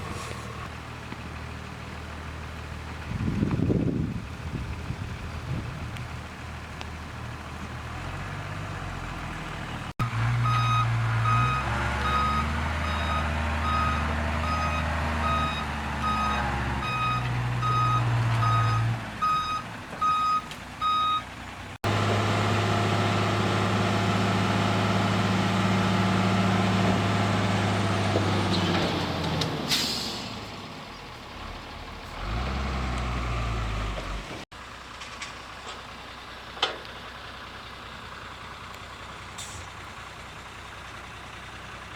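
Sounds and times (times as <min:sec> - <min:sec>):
diesel truck engine running: 0:00.0 - 0:41.9
reversing alarm beeping: 0:10.4 - 0:21.2
air brakes hissing: 0:29.6 - 0:30.6, 0:39.4 - 0:39.8.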